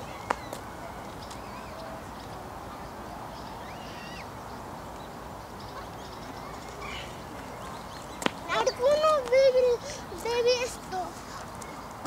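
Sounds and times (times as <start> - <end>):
faint bird calls: 0.0 - 4.6, 5.4 - 8.4
outdoor background hiss: 0.0 - 12.0.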